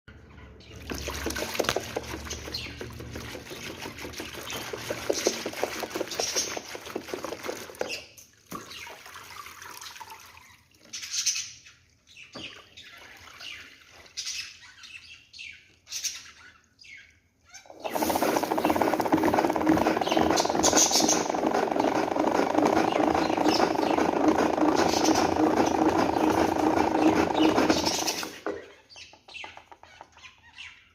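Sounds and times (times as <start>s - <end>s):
water sloshing and dripping: 0.8s - 11.1s, 11.9s - 14.5s
spin mop clicking: 17.7s - 28.6s
mop squeaks: 17.7s - 30.4s.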